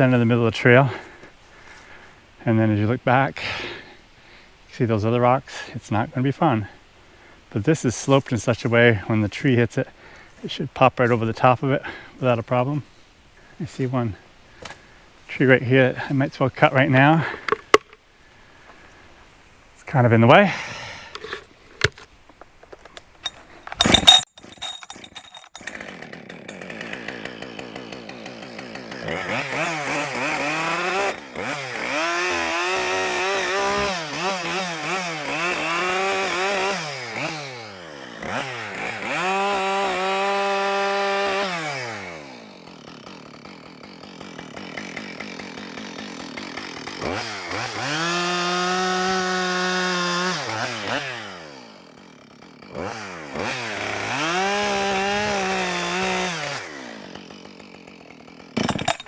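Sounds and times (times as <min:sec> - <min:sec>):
chainsaw idling and revving: 0:00.0 - 0:04.4, 0:13.4 - 0:19.1, 0:23.3 - 0:59.0.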